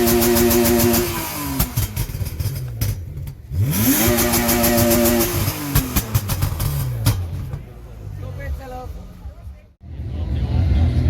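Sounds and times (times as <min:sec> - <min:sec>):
exhaust pops and crackles: 0:00.0 - 0:08.0
car engine revving: 0:00.0 - 0:11.0.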